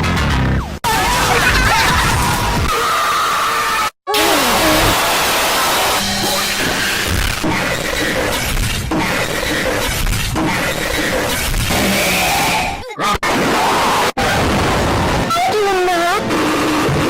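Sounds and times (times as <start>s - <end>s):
music: 0.0s - 2.6s, 5.6s - 8.4s
crashing and shattering noise: 1.0s - 2.7s.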